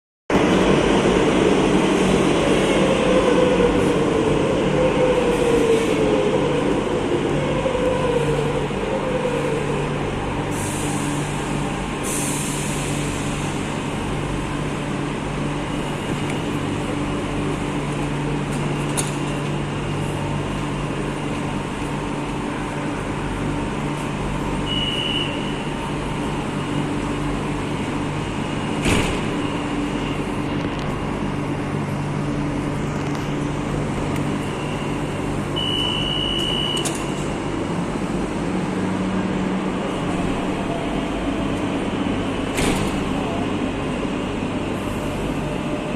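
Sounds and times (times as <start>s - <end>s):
train electrical hum: 0.3s - 45.9s
short high beeps: 35.6s - 37.0s.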